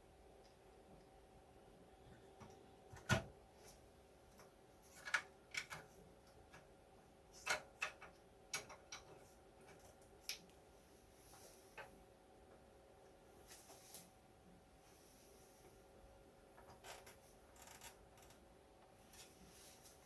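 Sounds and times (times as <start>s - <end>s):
faint electrical hum: 0.0s - 20.0s
tools clicking and tapping: 7.4s - 10.5s.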